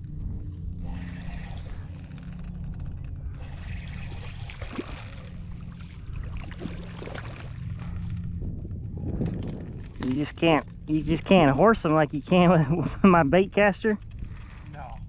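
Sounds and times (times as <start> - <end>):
wind rumble on microphone: 0.0 - 15.0
small water splashes and knocks: 5.8 - 8.0.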